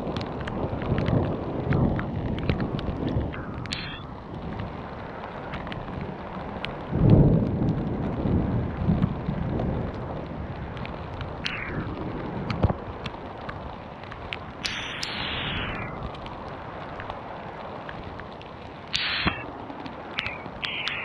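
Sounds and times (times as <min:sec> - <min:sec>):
hail and rain ticking: 0:00.0 - 0:21.0
wind buffeting microphone: 0:00.0 - 0:21.0
falling hissing sound: 0:14.6 - 0:15.9, 0:19.0 - 0:19.5.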